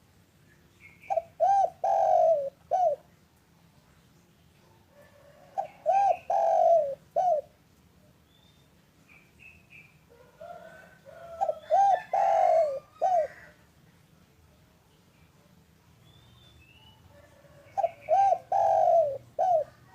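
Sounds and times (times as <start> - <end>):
dove cooing: 1.0 - 3.1, 4.9 - 7.6, 10.1 - 13.6, 17.1 - 19.9.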